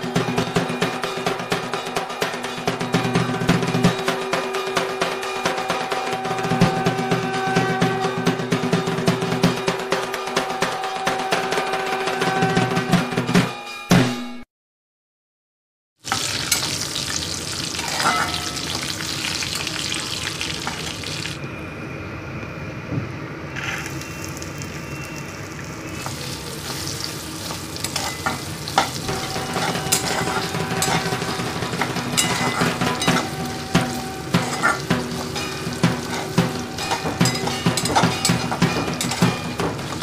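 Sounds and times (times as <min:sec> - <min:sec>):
oil sizzling in a pan: 0:16.0 - 0:21.4, 0:23.7 - 0:40.0
metal spatula scraping pan: 0:17.7 - 0:18.8, 0:26.0 - 0:40.0.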